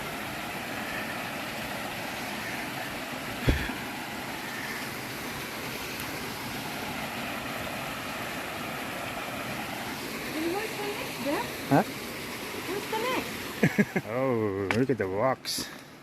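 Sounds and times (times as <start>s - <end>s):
small waterfall rushing: 0.0s - 14.6s
creek water flowing: 0.0s - 16.0s
dull thump: 3.4s - 3.8s.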